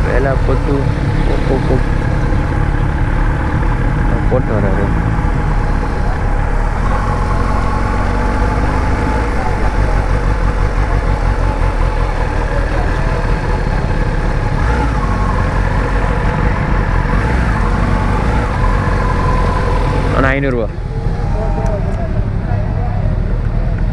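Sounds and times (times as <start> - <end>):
motorcycle engine idling: 0.0 - 23.9.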